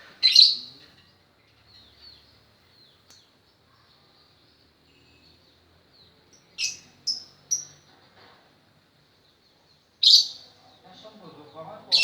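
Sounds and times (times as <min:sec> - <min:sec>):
lovebird chirping: 0:00.0 - 0:03.3, 0:06.0 - 0:07.9, 0:09.7 - 0:12.0.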